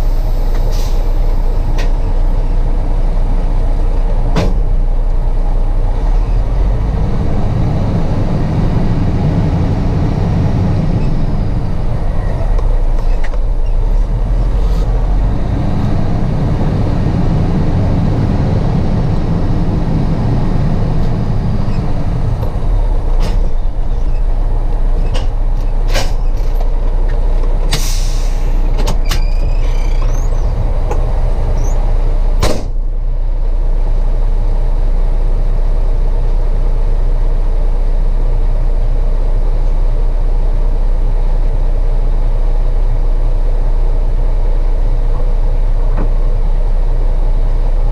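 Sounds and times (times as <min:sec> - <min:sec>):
truck diesel engine running: 0:00.0 - 0:47.9
air hiss: 0:27.7 - 0:28.7.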